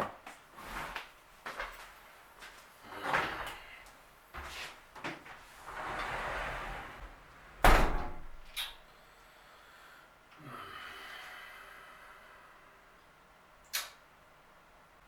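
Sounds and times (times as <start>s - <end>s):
cupboard door sliding: 5.4s - 8.6s
door shutting with a bang: 7.6s - 8.6s.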